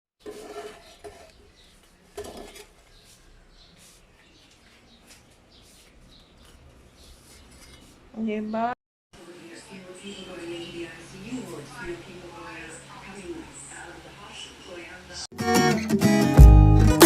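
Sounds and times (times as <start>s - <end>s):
dishes and utensils clinking: 0.2s - 2.8s.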